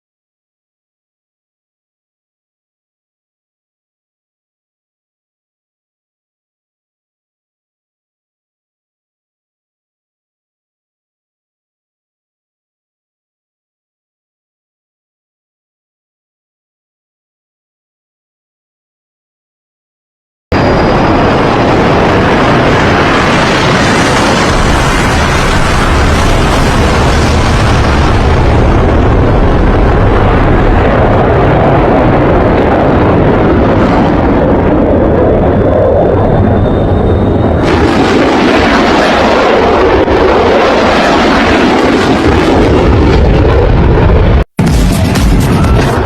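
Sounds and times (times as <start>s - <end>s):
fighter jet engine roar: 20.5s - 46.0s
faint high whine: 34.8s - 39.2s.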